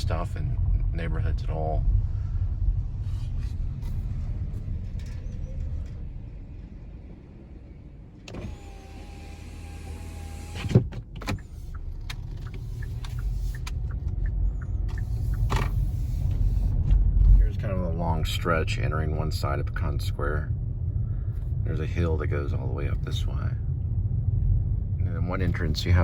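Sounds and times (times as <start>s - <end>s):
road rumble in car cabin: 0.0s - 26.0s
power window motor whine: 8.3s - 13.7s, 14.9s - 16.8s.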